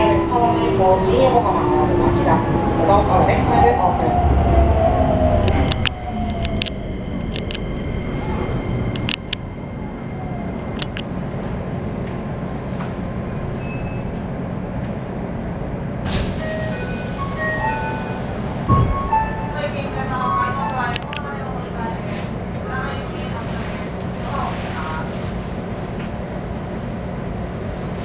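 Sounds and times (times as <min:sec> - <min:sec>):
electric train inverter whine: 0:00.0 - 0:23.0
train rumble: 0:00.0 - 0:28.0
sharp clicks: 0:05.4 - 0:07.6, 0:09.0 - 0:09.4, 0:10.8 - 0:11.1.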